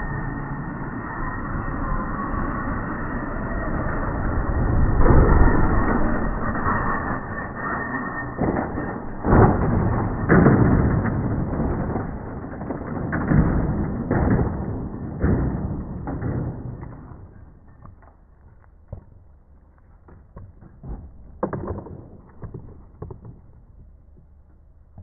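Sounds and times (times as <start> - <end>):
knocks and thuds: 8.4 - 17.8.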